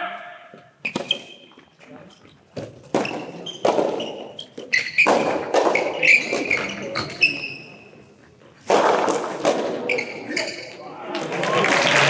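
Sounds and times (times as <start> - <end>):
shoe squeaks: 0.8 - 8.1, 9.8 - 10.8
tennis ball hits and bounces: 2.6 - 7.1.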